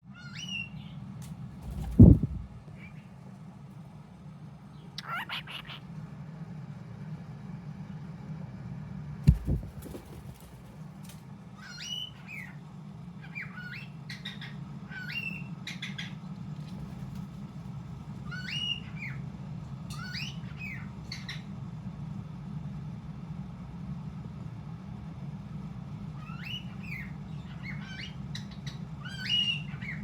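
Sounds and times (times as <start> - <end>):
steady low hum: 0.0 - 30.0
cockatiel chirping whistled calls: 5.0 - 5.8, 18.3 - 19.2, 26.2 - 30.0.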